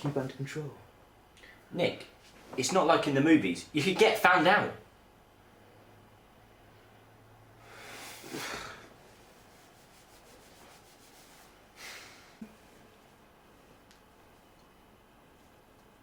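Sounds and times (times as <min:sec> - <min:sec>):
soft rubbing or rustling: 0:09.0 - 0:11.7.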